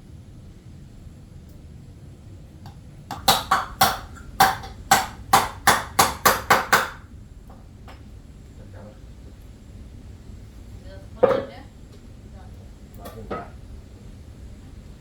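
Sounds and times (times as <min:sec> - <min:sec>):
hammer driving nail into wood: 0:03.1 - 0:07.0.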